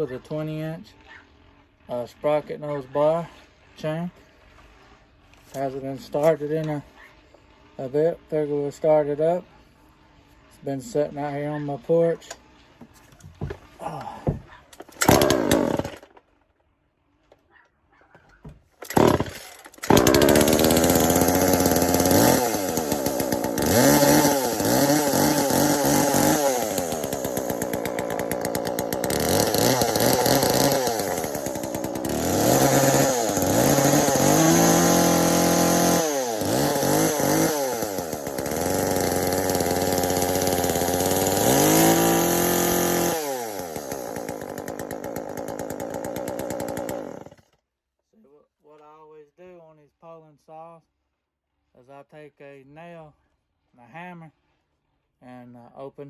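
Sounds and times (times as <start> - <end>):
chainsaw engine revving: 5.4 - 6.8, 13.4 - 16.2, 18.8 - 47.6
chainsaw pull-cord bursts: 5.4 - 6.8, 14.8 - 16.3, 18.8 - 47.6.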